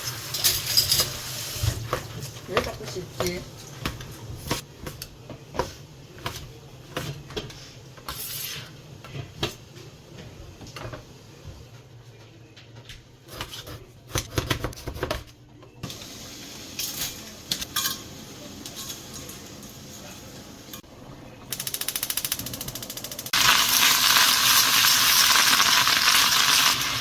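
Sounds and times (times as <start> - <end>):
utensils clinking against bowls: 0.0 - 3.7, 16.8 - 20.8.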